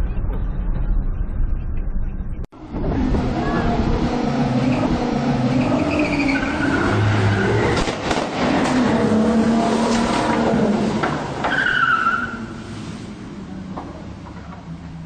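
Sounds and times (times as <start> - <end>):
high-pitched squeals: 0.0 - 7.8
car engine and tyre noise: 0.0 - 15.0.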